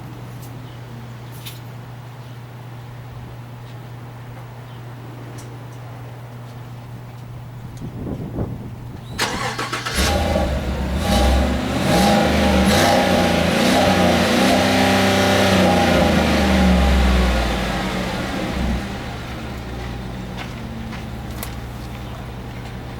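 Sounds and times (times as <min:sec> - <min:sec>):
pickup engine revving: 0:09.2 - 0:22.9.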